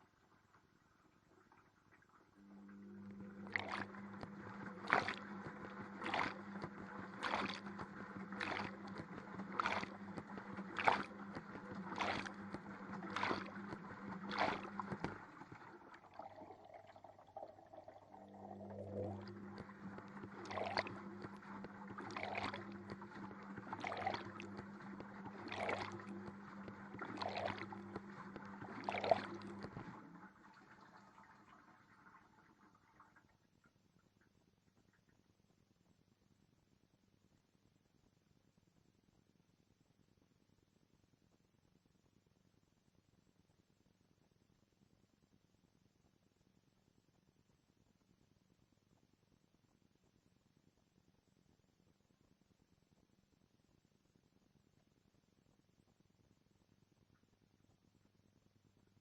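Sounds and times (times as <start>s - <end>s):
water and laundry sloshing: 1.8s - 33.2s
washing machine motor hum: 2.1s - 33.2s.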